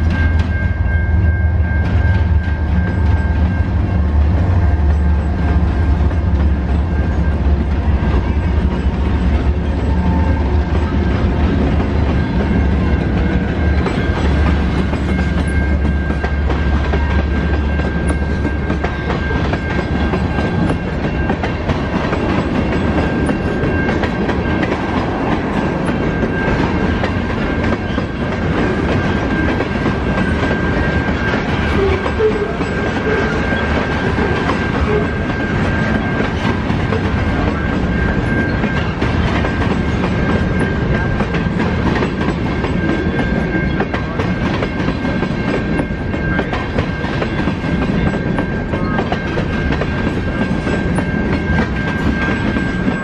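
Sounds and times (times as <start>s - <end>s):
train passing close by: 0.0s - 53.0s.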